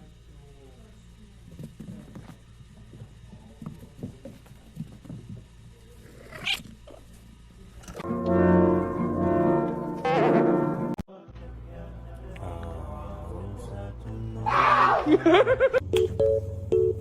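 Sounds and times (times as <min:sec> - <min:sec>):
loud brass-led music: 0:08.2 - 0:11.0.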